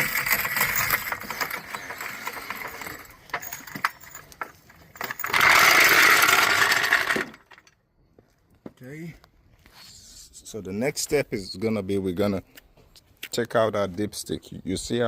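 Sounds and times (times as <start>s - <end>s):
floor jack clicks and rattles: 0.0s - 7.7s
hydraulic jack rushing release: 5.0s - 7.4s.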